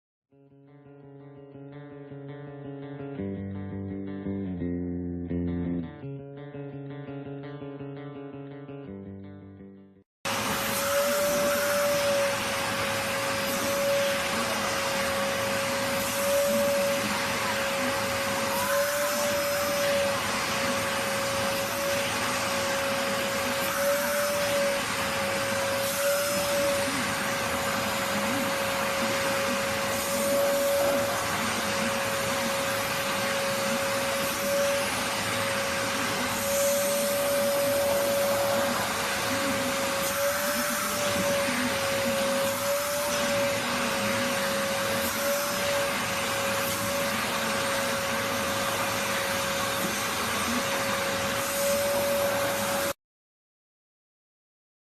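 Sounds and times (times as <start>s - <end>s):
vacuum cleaner running: 10.2s - 53.0s.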